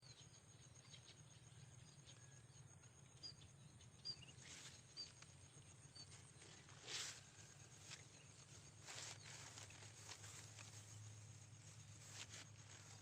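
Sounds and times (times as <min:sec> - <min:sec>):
soft rustles: 0:06.2 - 0:13.0.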